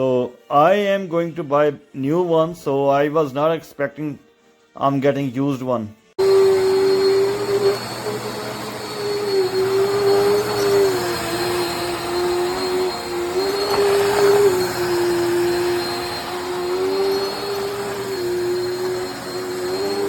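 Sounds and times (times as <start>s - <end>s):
thin high whine: 6.2s - 20.0s
vacuum cleaner motor hum: 6.2s - 20.0s.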